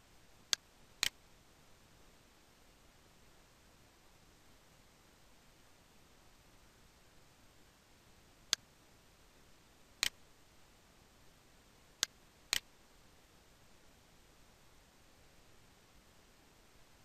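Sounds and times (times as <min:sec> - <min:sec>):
mouse buttons clicking: 0:10.0 - 0:10.2, 0:12.0 - 0:12.7.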